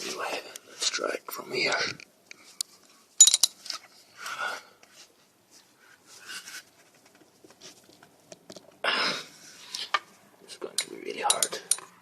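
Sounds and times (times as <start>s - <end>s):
metal clink of ratchet: 11.3s - 11.9s.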